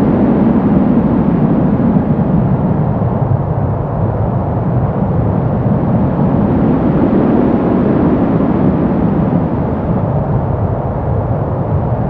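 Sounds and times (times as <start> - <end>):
deep rushing brown noise: 0.0 - 12.0.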